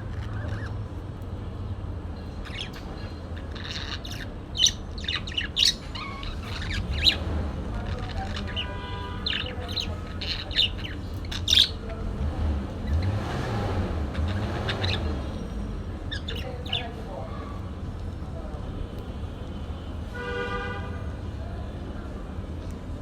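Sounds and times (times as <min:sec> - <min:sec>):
parakeet chirping and squawking: 0:00.0 - 0:01.0, 0:02.2 - 0:17.0.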